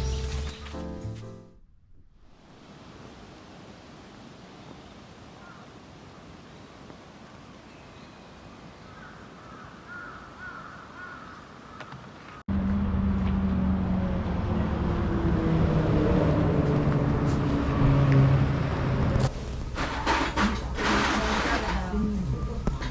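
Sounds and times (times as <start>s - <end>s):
crows cawing: 5.4s - 5.7s, 8.8s - 12.4s
motor vehicle drone: 12.5s - 19.7s.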